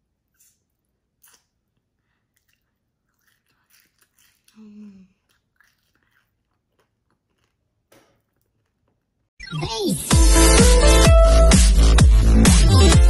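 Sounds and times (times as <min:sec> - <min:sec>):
child chewing soft crunches: 0:00.0 - 0:09.3
person humming mmm: 0:04.5 - 0:05.2.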